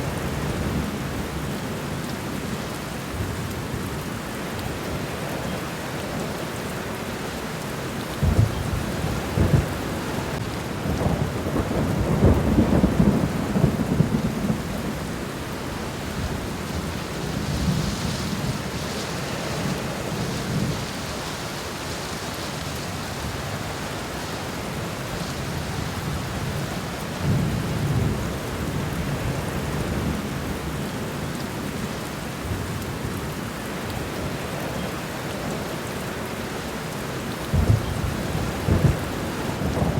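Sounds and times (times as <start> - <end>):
steady rain falling: 0.0 - 39.9
low rolls of thunder: 8.1 - 21.3, 37.4 - 39.9.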